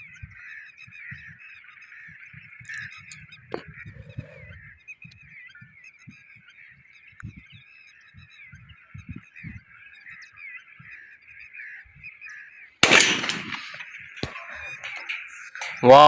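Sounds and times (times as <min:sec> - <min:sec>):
starlings chattering: 0:00.0 - 0:16.0
loud gunshot with echo: 0:12.8 - 0:14.8.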